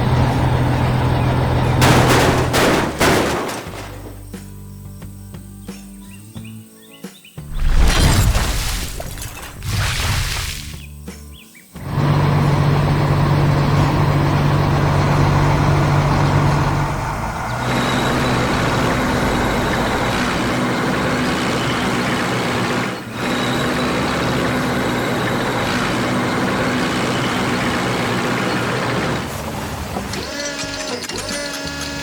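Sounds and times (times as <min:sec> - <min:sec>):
heavy truck engine running: 0:00.0 - 0:04.4, 0:11.8 - 0:32.0.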